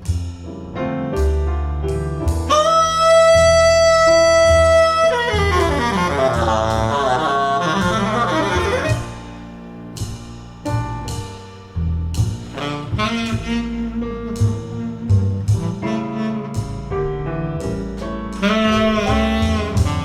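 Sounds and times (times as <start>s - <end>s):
double bass: 0.0s - 20.0s
piano: 0.0s - 20.0s
tenor saxophone: 2.5s - 9.4s, 12.6s - 17.0s, 18.4s - 20.0s.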